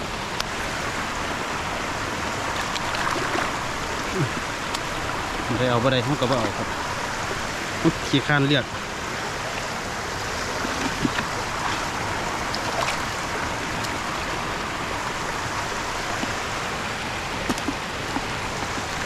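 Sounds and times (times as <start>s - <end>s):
water rushing: 0.0s - 19.0s
small splashes and knocks: 2.5s - 4.9s, 10.4s - 14.1s, 17.4s - 19.0s.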